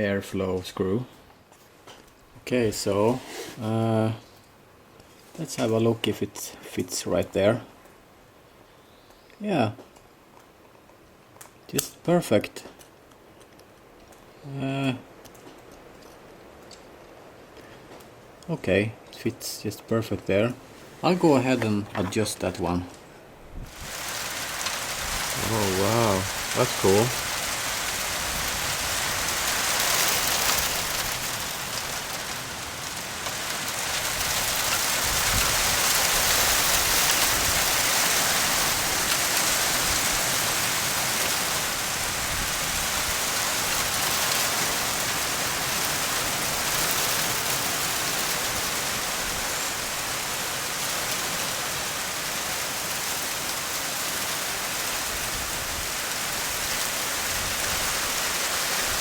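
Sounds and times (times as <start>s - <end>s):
rain falling: 20.2s - 59.0s.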